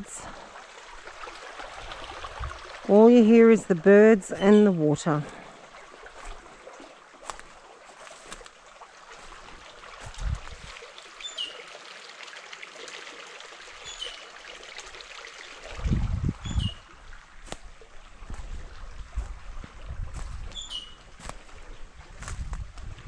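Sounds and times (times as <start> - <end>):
creek running and trickling: 0.0 - 23.0
bird calling: 4.3 - 4.9, 20.5 - 21.0.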